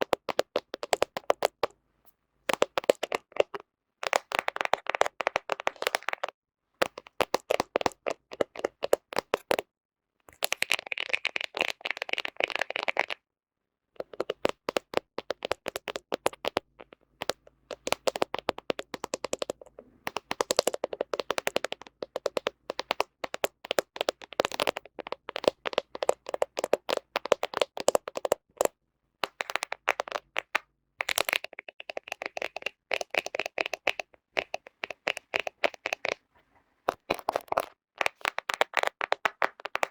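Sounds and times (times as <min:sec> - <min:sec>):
fingernails tapping on phone lens: 0:00.0 - 0:01.7, 0:02.5 - 0:09.6, 0:14.0 - 0:36.2.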